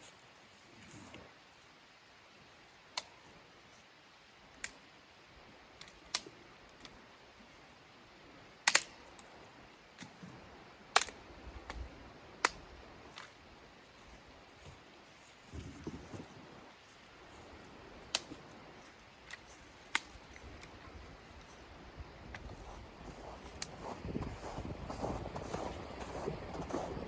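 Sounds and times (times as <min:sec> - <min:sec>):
faint steady hiss: 0:00.0 - 0:27.0
sharp clicks or snaps: 0:08.7 - 0:09.0, 0:11.0 - 0:11.8.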